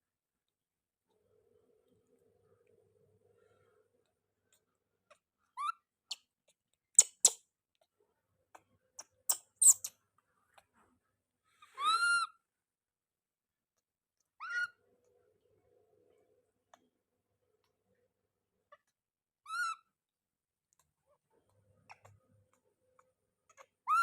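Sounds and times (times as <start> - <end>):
baby monkey high-pitched calls: 7.0 - 7.4, 9.0 - 9.9, 11.7 - 12.4, 14.4 - 14.8, 19.4 - 20.0, 23.5 - 24.0.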